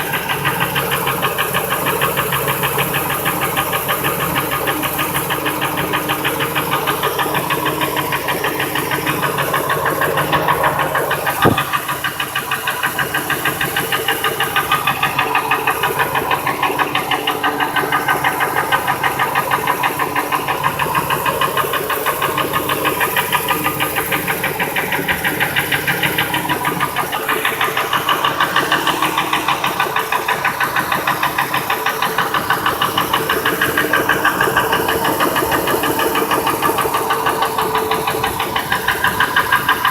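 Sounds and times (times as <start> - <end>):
engine running with rhythmic knock: 0.0 - 39.9
sharp thump: 11.4 - 11.9.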